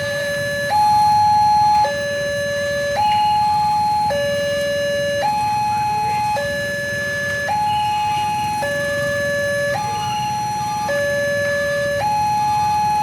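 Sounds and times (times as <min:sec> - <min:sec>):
two-tone electronic alarm: 0:00.0 - 0:13.0.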